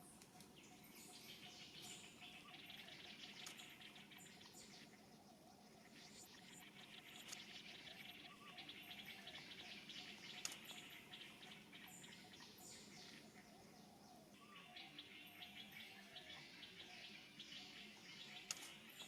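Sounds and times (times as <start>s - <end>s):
faint birdsong: 0.0s - 19.0s
sharp click: 10.4s - 10.8s, 18.4s - 18.8s.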